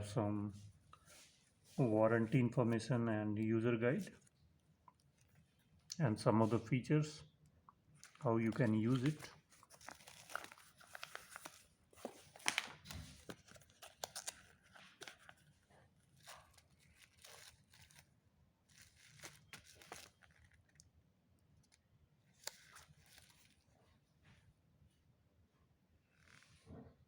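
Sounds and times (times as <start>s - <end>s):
packaging rustling: 8.0s - 20.9s, 21.6s - 23.7s.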